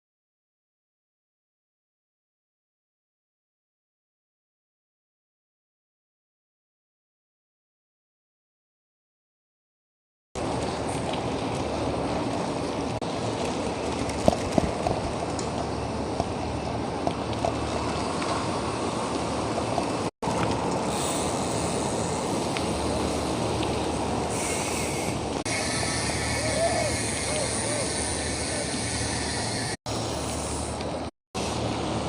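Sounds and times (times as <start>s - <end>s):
road noise: 10.4s - 32.0s
rushing wind: 10.4s - 32.0s.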